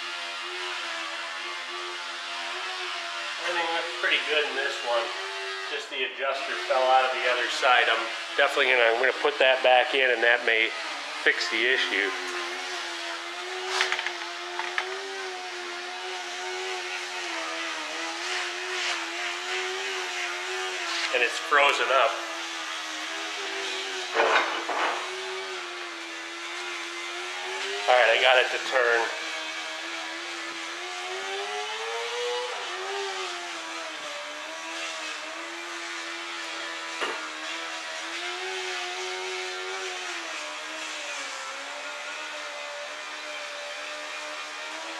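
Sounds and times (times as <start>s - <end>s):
motor humming: 10.4s - 22.3s.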